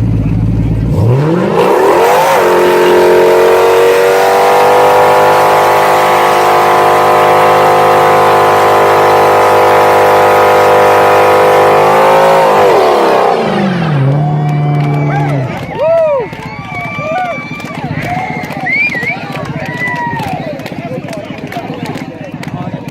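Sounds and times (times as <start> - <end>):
car engine at high revs: 0.0 - 15.7.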